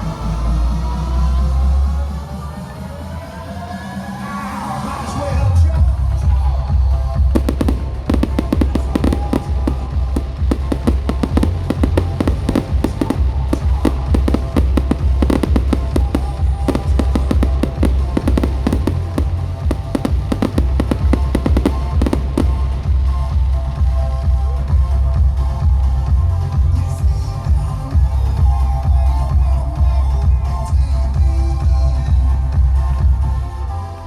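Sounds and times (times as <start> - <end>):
fireworks crackling and banging: 7.3 - 23.1.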